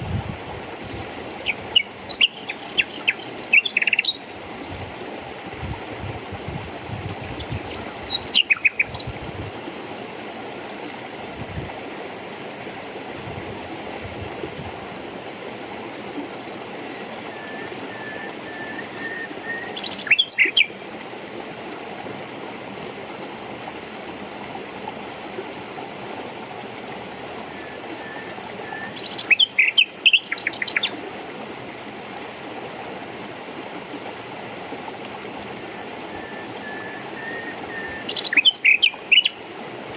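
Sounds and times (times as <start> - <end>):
running water rushing: 0.0 - 39.9
birds chirping: 1.2 - 4.2, 6.8 - 9.1, 17.4 - 20.8, 27.6 - 31.0, 36.2 - 39.4.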